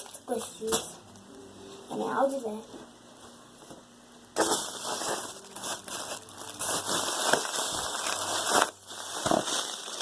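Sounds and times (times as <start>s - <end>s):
crackling crinkling handling noise: 0.0s - 1.4s, 4.4s - 10.0s.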